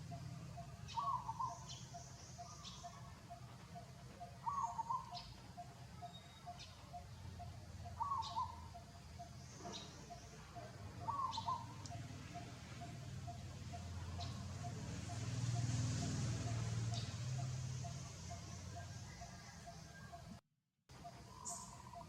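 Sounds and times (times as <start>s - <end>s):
bird warbling call: 0.1s - 15.7s.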